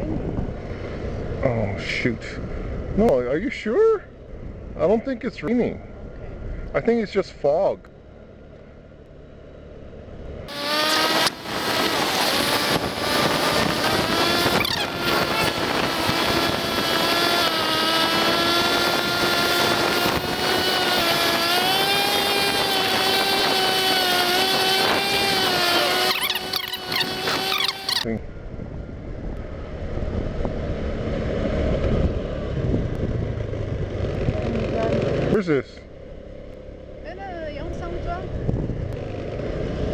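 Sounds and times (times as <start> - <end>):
wind noise on microphone: 0.0 - 1.4, 10.5 - 35.3, 37.8 - 39.0
scooter engine pulling away: 10.5 - 28.1, 29.6 - 39.9.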